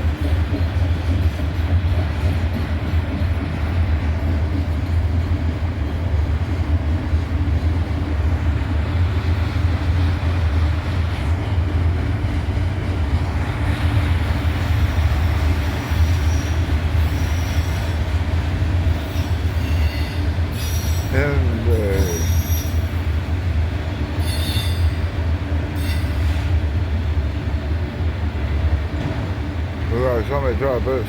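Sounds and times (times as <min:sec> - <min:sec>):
freight train rolling past: 0:00.0 - 0:31.0
high wheel squeal: 0:19.1 - 0:21.2, 0:21.9 - 0:23.0, 0:24.2 - 0:25.0.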